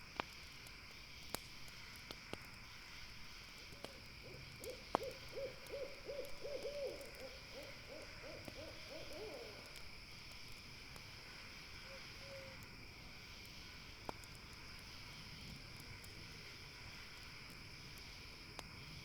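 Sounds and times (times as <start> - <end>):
campfire crackling: 0.0 - 19.0
owl hooting: 4.3 - 9.7.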